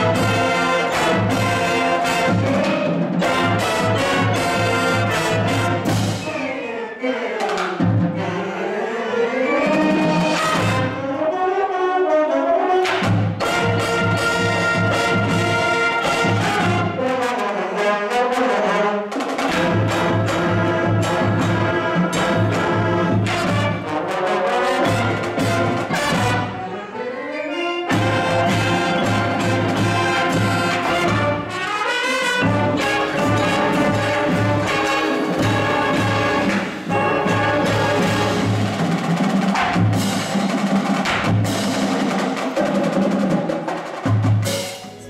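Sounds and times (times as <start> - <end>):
marching band playing: 0.0 - 45.0.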